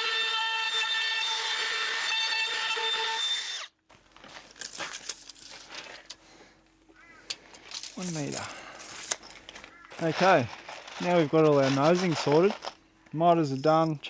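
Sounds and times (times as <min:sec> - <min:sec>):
faint handling clicks and knocks: 0:03.9 - 0:14.0.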